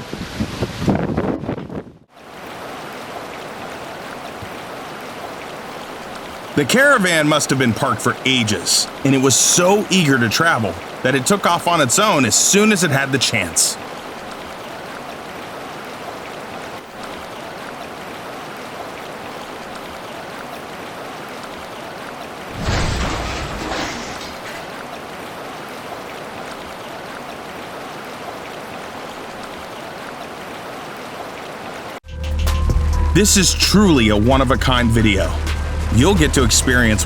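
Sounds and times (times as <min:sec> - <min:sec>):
heavy rain hissing: 0:06.6 - 0:13.8.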